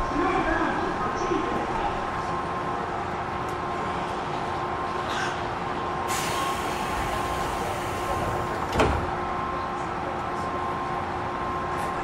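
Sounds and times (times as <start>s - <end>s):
air hiss: 6.1s - 8.2s.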